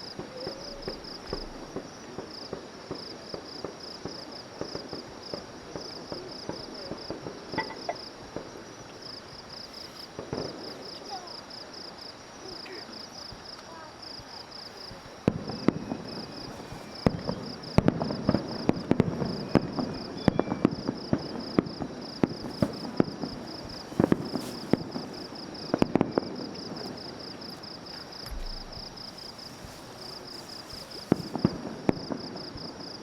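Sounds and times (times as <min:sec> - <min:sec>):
fireworks bangs and crackles: 0:00.0 - 0:33.0
insect chirping: 0:00.0 - 0:33.0.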